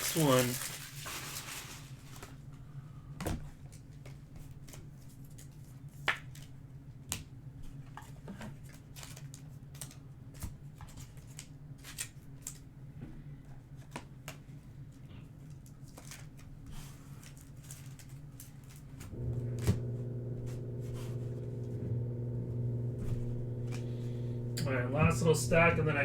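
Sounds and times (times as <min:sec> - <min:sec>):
steady low hum: 0:19.1 - 0:26.0.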